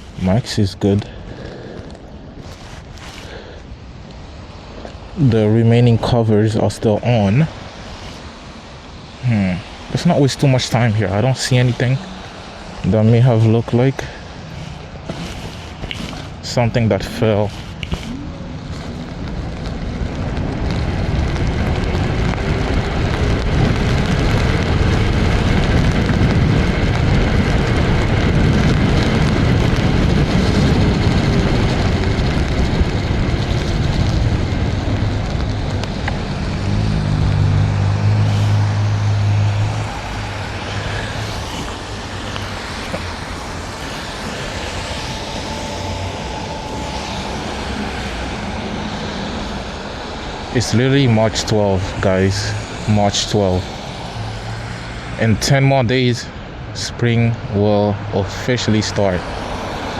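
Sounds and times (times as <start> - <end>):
wet road noise: 0.0 - 59.9
wind buffeting microphone: 7.5 - 55.2.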